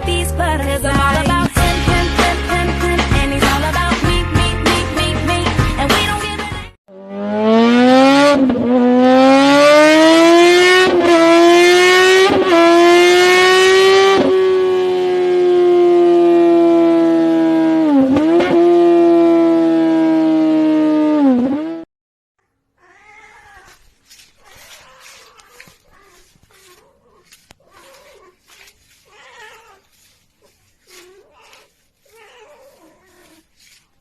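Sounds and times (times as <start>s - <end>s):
faint cat meows: 22.4s - 30.0s, 30.9s - 33.5s
cat yowling: 22.4s - 33.8s.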